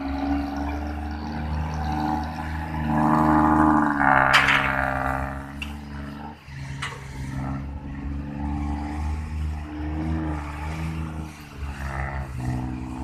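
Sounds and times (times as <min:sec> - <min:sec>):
large diesel engine running: 0:00.0 - 0:10.0.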